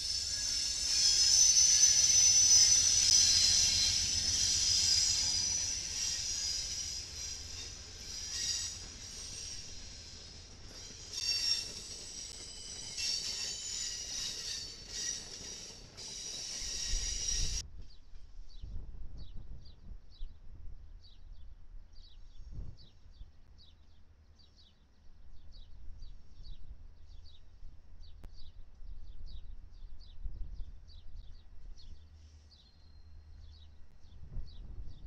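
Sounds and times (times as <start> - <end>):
diesel locomotive rumble: 0.0 - 17.6.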